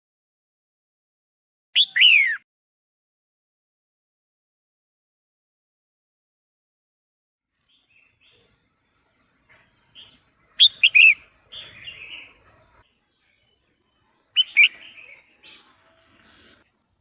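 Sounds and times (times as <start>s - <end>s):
bird calling sharp notes: 1.8s - 2.4s, 10.6s - 12.3s, 14.4s - 15.7s
bird chattering: 10.6s - 11.2s, 14.4s - 15.2s.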